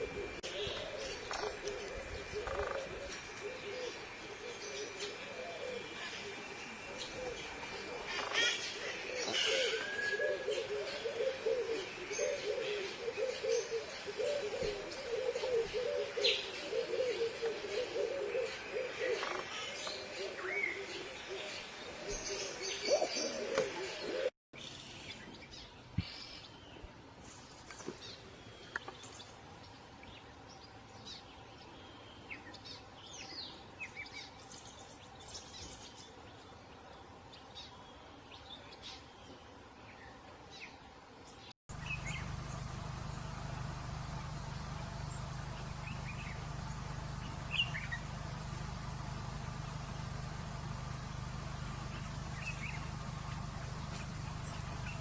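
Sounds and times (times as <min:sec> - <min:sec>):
birds chirping: 0:00.0 - 0:24.3, 0:41.4 - 0:55.0
steady low hum: 0:00.0 - 0:24.3, 0:41.7 - 0:55.0.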